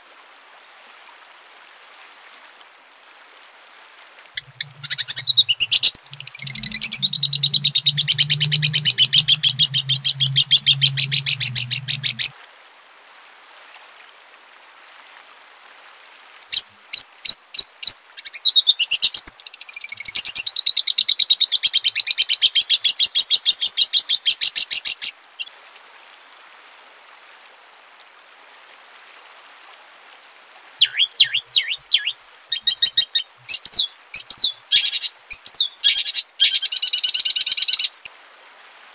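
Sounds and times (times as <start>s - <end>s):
background hiss: 4.3s - 12.3s, 30.4s - 38.2s
low hum: 4.4s - 12.3s
short sharp bird calls: 4.4s - 12.3s, 30.8s - 38.0s
songbird fast high notes: 4.4s - 12.3s.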